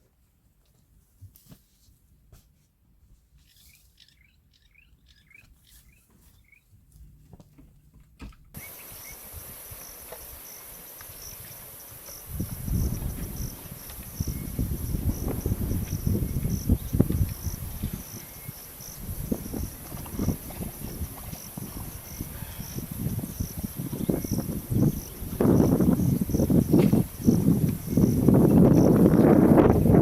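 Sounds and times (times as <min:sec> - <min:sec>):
faint bird chirps: 0:03.4 - 0:06.7
insect chorus trilling: 0:08.6 - 0:29.9.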